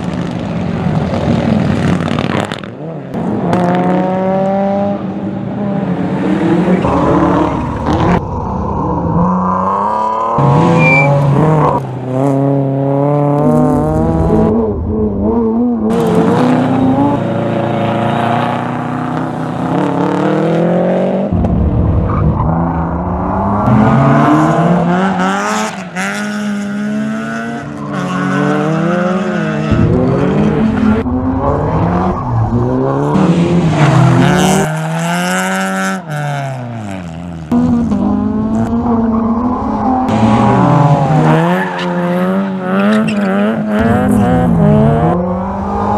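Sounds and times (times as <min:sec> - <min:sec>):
rally car engines revving: 0:00.0 - 0:45.9.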